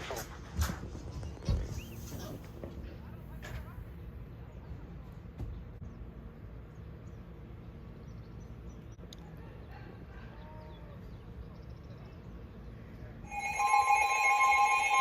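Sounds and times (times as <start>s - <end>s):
two-tone radio alert: 13.3s - 15.0s.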